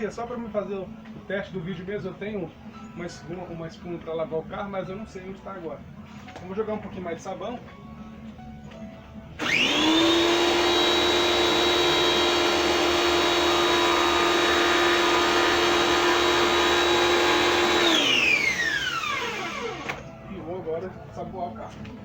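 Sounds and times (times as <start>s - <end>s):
electric pressure washer whining: 9.4s - 20.1s.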